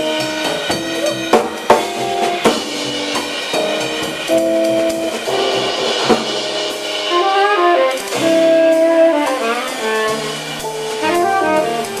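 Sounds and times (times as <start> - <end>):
bass: 0.0 - 12.0
drums: 0.0 - 12.0
sharp cymbal hit: 0.0 - 12.0
tenor saxophones: 7.1 - 12.0.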